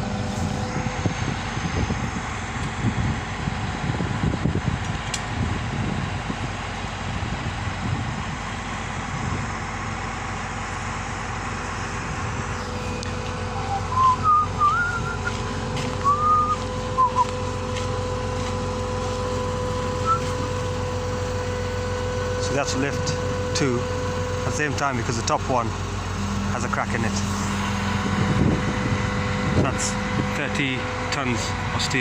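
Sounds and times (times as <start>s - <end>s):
low rumble of vehicle engines: 0.0s - 32.0s
steady whine: 0.0s - 32.0s
short whistled notes: 13.6s - 15.4s, 16.0s - 17.3s, 20.0s - 20.4s.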